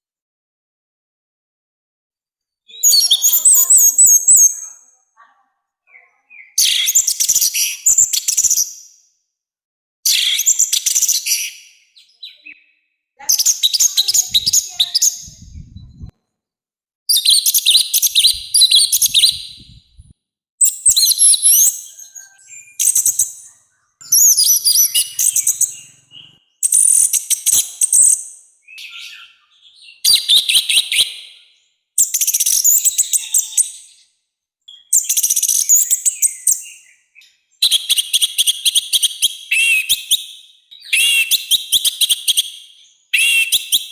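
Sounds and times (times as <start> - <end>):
thrush singing harsh chattering song: 13.2 - 16.1, 21.5 - 27.1.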